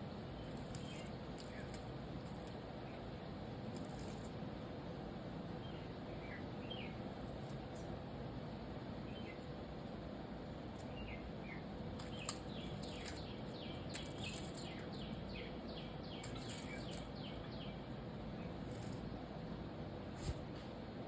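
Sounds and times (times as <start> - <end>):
outdoor background noise: 0.0 - 21.0
small bird chirping: 0.3 - 1.8, 9.1 - 9.5, 10.8 - 19.1.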